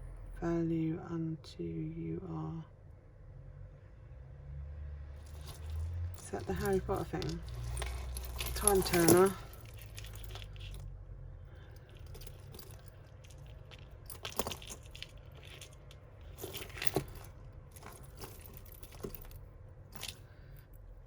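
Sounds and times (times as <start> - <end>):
metal chains clinking: 5.2 - 20.8
low steady hum: 5.2 - 21.0.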